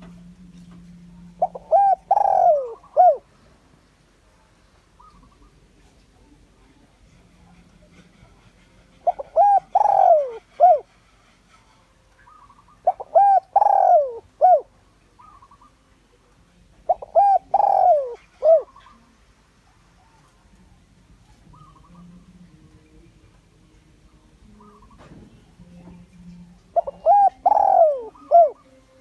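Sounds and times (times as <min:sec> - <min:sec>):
dove cooing: 0:00.0 - 0:03.3, 0:04.9 - 0:05.7, 0:07.4 - 0:11.0, 0:12.2 - 0:15.8, 0:16.8 - 0:19.1, 0:21.3 - 0:22.5, 0:26.7 - 0:29.0.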